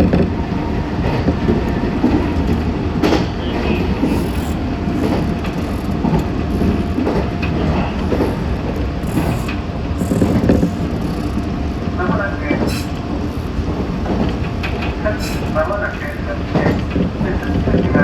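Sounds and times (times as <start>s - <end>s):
electric train rumbling: 0.0s - 18.0s
wheels clicking on rails: 0.0s - 18.0s.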